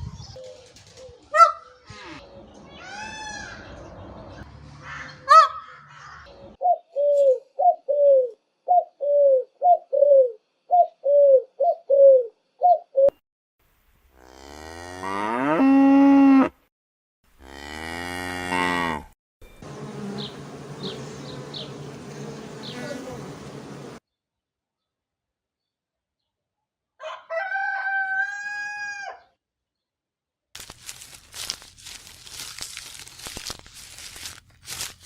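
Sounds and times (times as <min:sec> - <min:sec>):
cow mooing: 0:14.2 - 0:16.6, 0:17.4 - 0:19.1
steady buzzing hiss: 0:19.6 - 0:24.0.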